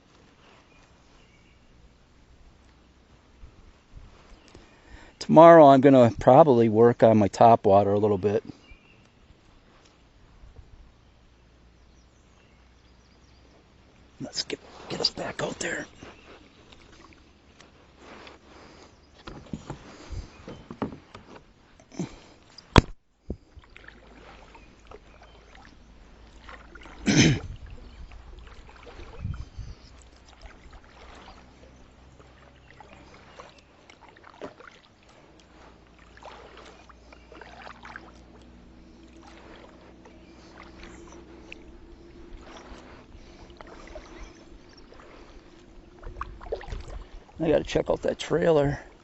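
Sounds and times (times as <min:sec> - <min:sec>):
faint steady hum: 0:00.0 - 0:49.0
knocks and handling noises: 0:19.2 - 0:21.5
loud thump: 0:22.7 - 0:23.0.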